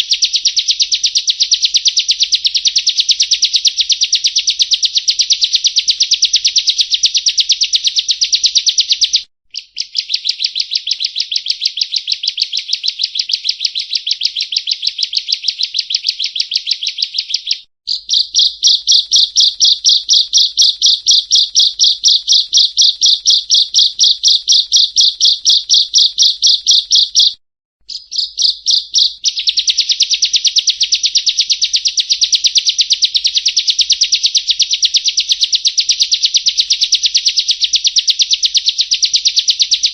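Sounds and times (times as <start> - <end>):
bird repeating sharp high note: 17.4 - 29.3.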